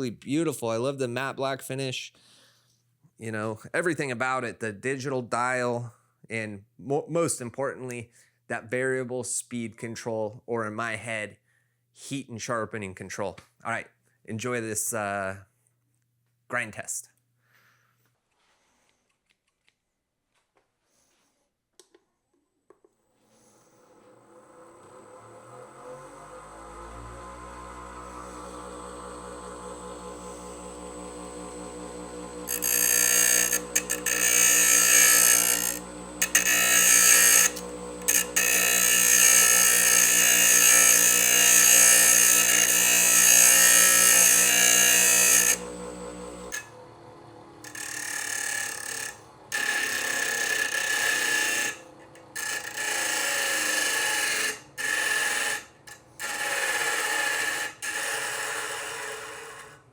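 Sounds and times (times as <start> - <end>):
bench grinder motor hum: 23.5 - 59.9
scissors grinding on wheel: 32.3 - 45.8, 47.7 - 59.6.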